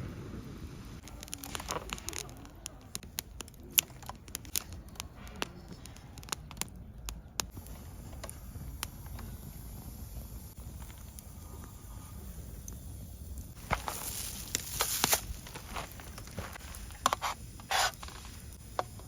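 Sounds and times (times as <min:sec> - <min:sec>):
objects clicking and tapping: 0:01.0 - 0:09.4
light crinkling: 0:01.0 - 0:19.0.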